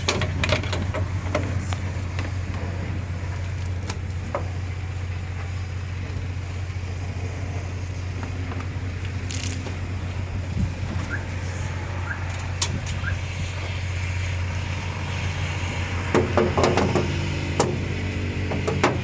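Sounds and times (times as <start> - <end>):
metallic knocks and clatter: 0.0 - 2.7, 16.1 - 19.0
motor humming: 0.0 - 19.0.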